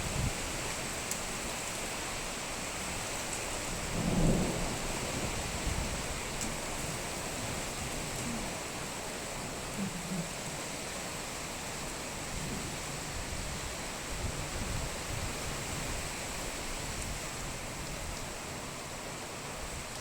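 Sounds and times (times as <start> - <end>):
rain hissing: 0.0 - 20.0
thunder rumbling: 3.8 - 10.6.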